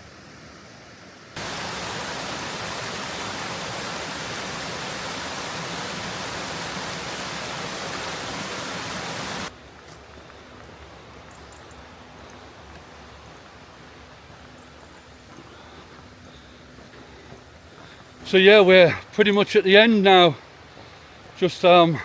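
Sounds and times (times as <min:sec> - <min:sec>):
quiet outdoor hiss: 0:00.0 - 0:22.0
rushing falling water: 0:01.3 - 0:09.5, 0:17.8 - 0:22.0.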